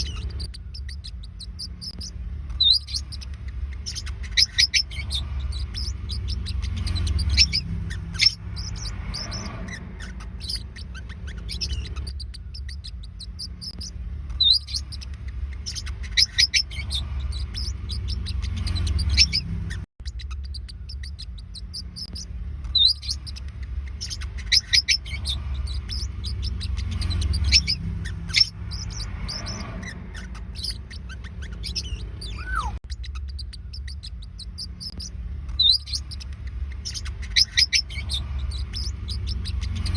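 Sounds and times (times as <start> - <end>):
low rumble: 0.0 - 39.9
parrotlets chirping: 0.0 - 39.9.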